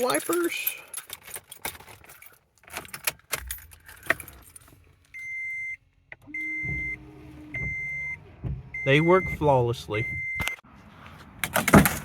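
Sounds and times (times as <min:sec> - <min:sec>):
keys jangling in ignition: 0:00.0 - 0:05.0
dashboard warning chime beeping: 0:05.1 - 0:10.6.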